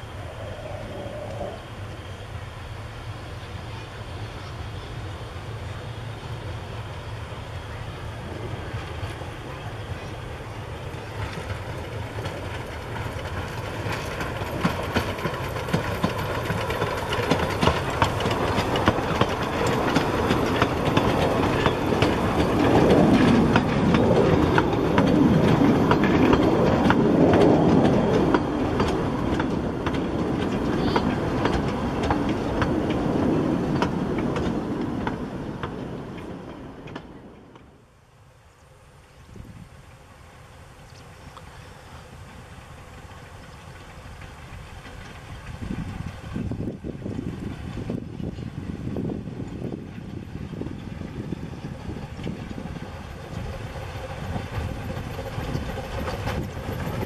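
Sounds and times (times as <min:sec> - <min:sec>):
train wheels clicking over rail joints: 0:10.0 - 0:37.8, 0:42.1 - 0:57.0.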